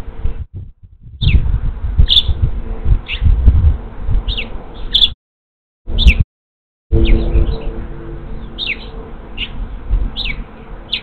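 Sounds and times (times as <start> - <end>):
low rumble: 0.0 - 5.0, 6.9 - 11.0
small bird chirping: 2.0 - 2.4, 3.0 - 3.3, 4.3 - 5.2, 8.4 - 11.0
faint steady hum: 6.9 - 11.0.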